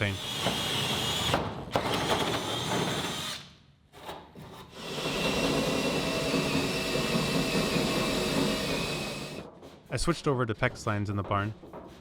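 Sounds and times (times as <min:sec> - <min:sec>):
power drill boring into wood: 0:04.8 - 0:09.4.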